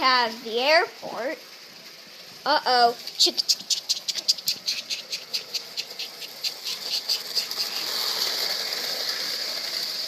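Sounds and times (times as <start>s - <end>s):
model train clicking on track: 0.0s - 10.0s
steady hiss: 0.0s - 10.0s.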